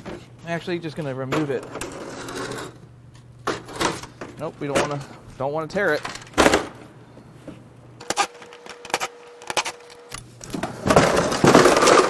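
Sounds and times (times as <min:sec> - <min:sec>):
scraping rustle: 0:08.0 - 0:10.2.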